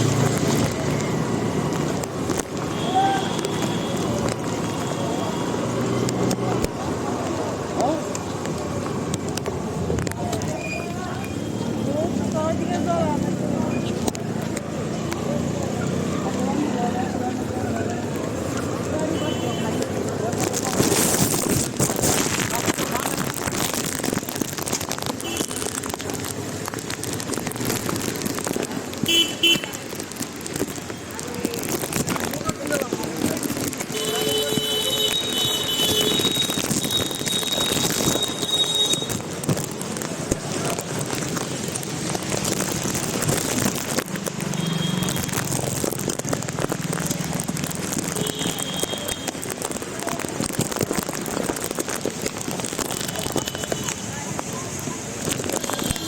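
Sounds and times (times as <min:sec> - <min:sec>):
heavy rain falling: 0:00.0 - 0:56.0
low hum of road traffic: 0:00.0 - 0:56.0
noisy street sound: 0:00.0 - 0:56.0
vehicle horn toots: 0:29.1 - 0:29.6, 0:34.0 - 0:39.1.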